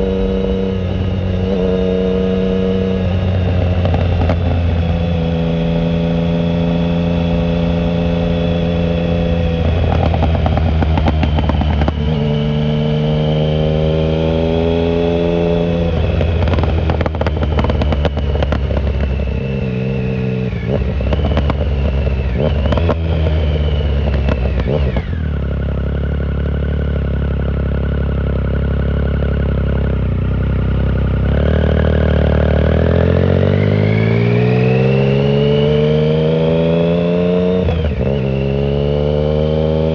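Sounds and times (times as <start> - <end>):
motorcycle engine accelerating: 0.0 - 39.9
exhaust crackles and pops: 3.4 - 4.8, 9.5 - 12.4, 15.8 - 19.3, 20.8 - 23.4.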